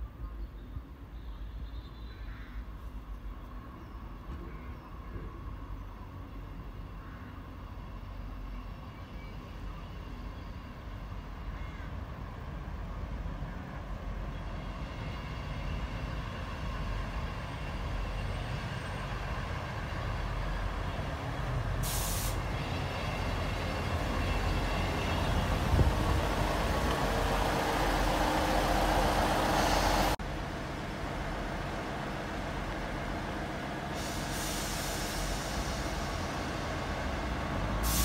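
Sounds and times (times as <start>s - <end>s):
diesel train arriving: 3.0s - 38.0s
sharp air hiss: 21.8s - 22.5s, 33.9s - 36.7s, 37.8s - 38.0s.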